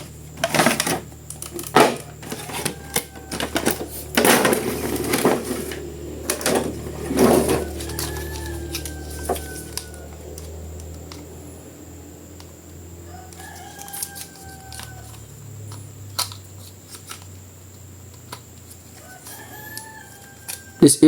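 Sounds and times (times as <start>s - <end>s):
low steady hum: 0.0s - 20.8s
rooster crowing: 1.8s - 15.6s, 18.8s - 21.0s.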